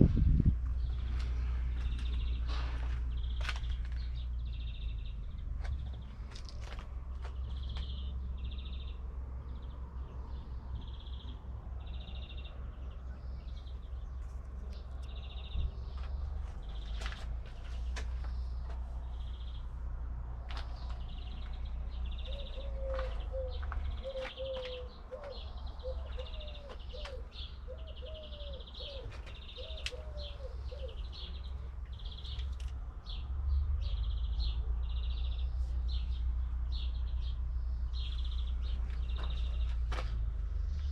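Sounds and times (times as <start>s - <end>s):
steady low rumble: 0.0s - 27.8s
birds chirping: 0.0s - 40.9s.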